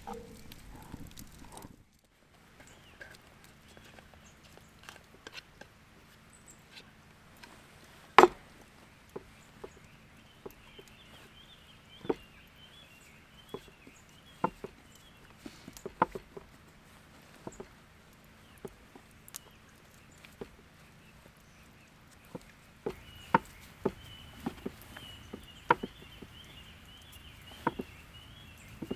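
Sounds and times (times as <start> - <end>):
sharp clicks and knocks: 0.0 - 1.8, 22.3 - 28.9
faint high chirping: 22.9 - 28.9.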